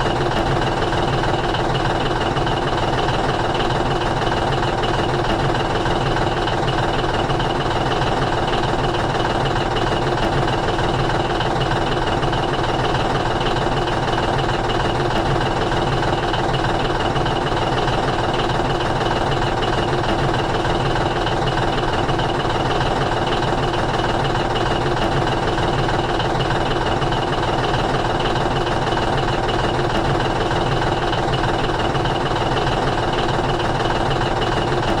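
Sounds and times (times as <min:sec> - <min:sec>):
engine idling: 0:00.0 - 0:35.0.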